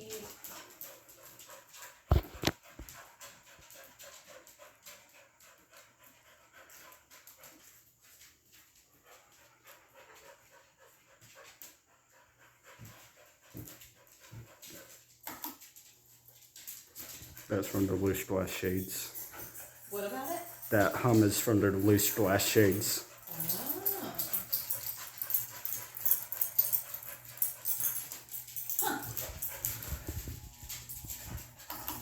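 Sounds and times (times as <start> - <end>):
dog panting: 0.0 - 32.0
ceiling fan humming: 16.2 - 32.0.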